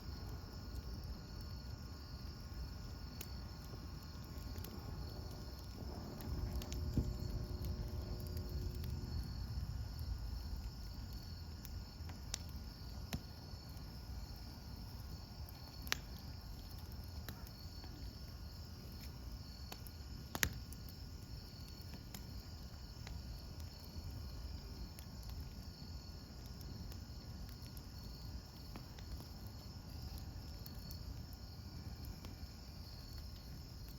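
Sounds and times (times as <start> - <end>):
campfire burning and popping: 0.0 - 33.9
crickets chirping: 0.0 - 33.9.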